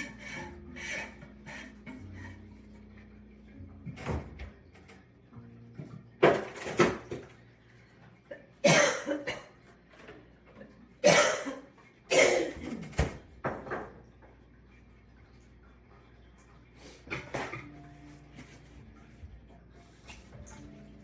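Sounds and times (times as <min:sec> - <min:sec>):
person coughing: 0:08.6 - 0:09.5, 0:11.0 - 0:12.9.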